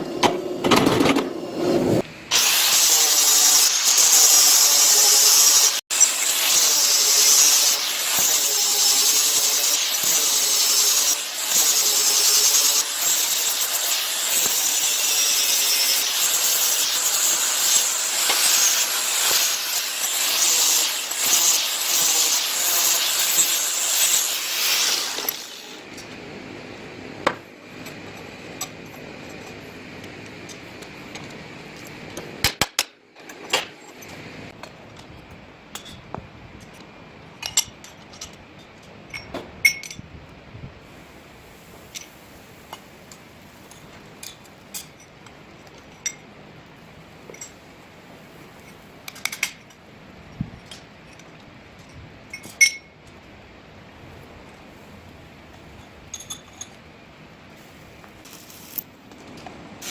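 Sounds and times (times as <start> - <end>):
power tool grinding metal: 1.6 - 25.9.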